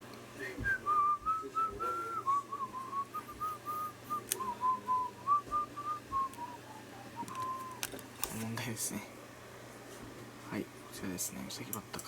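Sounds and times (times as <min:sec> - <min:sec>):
person whistling a tune: 0:00.5 - 0:07.8.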